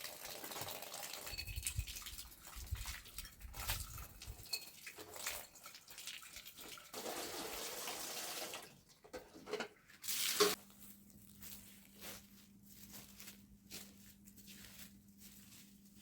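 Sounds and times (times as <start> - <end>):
water running from tap: 0.0 - 3.1, 3.9 - 8.8.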